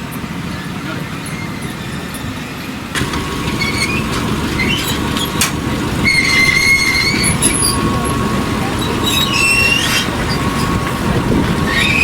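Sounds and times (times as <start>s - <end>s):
high metallic squealing: 1.2s - 12.0s
machinery low rumble: 3.0s - 12.0s.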